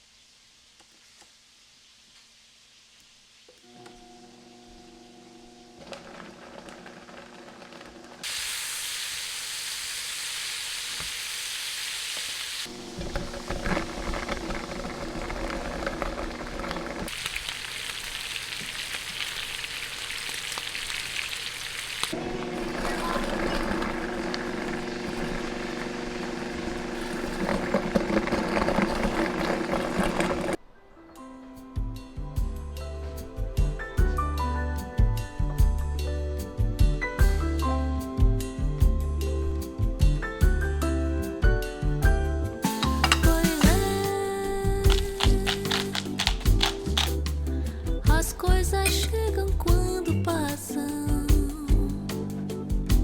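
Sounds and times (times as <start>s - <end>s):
food sizzling in hot oil: 8.2s - 27.6s.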